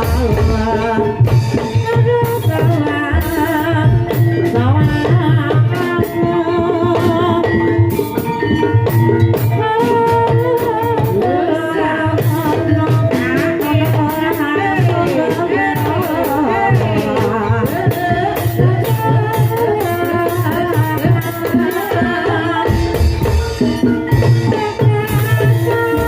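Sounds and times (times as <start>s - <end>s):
gamelan tuned tones: 0.0s - 17.2s, 22.6s - 26.0s.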